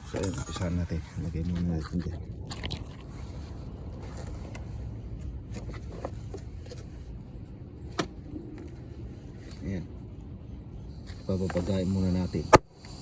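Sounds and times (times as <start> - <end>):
torch flame rumbling and hissing: 10.8 - 13.0.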